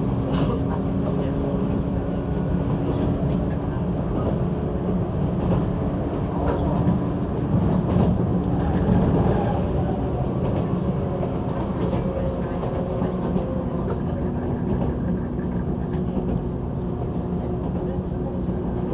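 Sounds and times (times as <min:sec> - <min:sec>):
train wheels rumbling on rail: 0:00.0 - 0:18.9.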